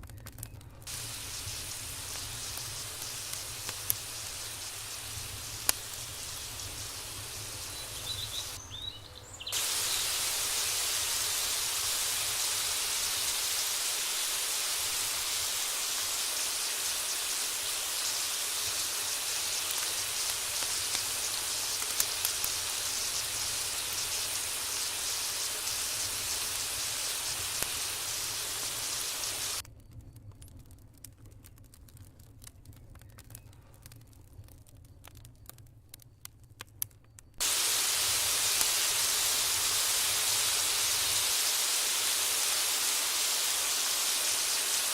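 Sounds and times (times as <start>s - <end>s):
oil popping: 0.9s - 8.6s, 9.5s - 29.6s, 37.4s - 44.9s
food sizzling in hot oil: 0.9s - 29.6s, 37.4s - 44.9s.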